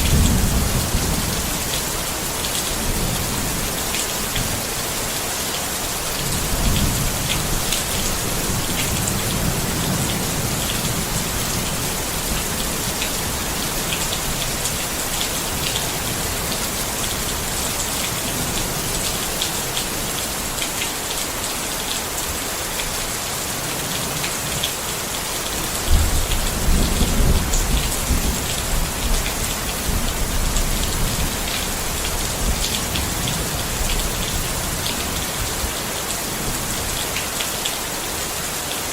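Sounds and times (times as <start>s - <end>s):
thunder rumbling and cracking: 0.0s - 1.8s, 25.8s - 33.9s
rain falling on a tent: 0.0s - 38.9s.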